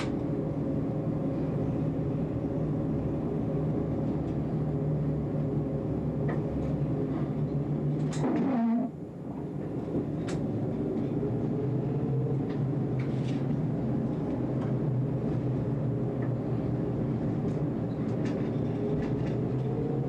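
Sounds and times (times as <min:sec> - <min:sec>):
sharp clicks of tram: 0:00.0 - 0:00.3, 0:07.9 - 0:11.1, 0:12.4 - 0:15.4, 0:17.3 - 0:19.8
tram motor and wheel rumble: 0:00.0 - 0:20.0.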